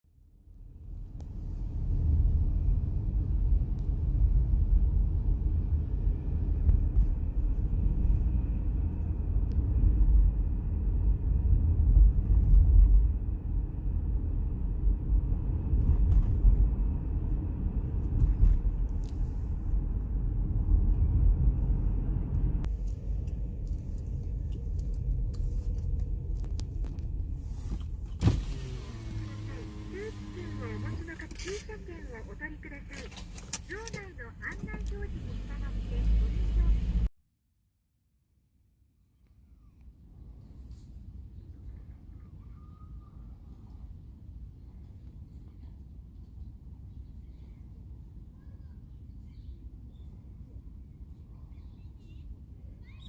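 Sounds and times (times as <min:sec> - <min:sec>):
car road and engine rumble: 0:00.2 - 0:37.1.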